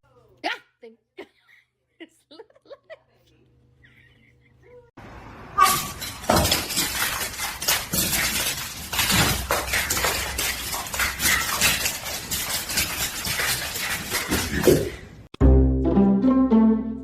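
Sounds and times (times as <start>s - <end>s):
hard objects clattering: 5.6s - 15.3s.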